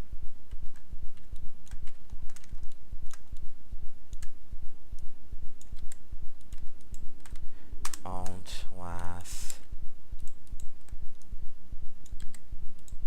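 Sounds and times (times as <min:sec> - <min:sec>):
low pulsing hum: 0:00.0 - 0:13.0
keyboard and mouse clicking: 0:00.5 - 0:03.5, 0:04.1 - 0:04.4, 0:05.0 - 0:08.4, 0:10.2 - 0:11.3, 0:12.0 - 0:13.0.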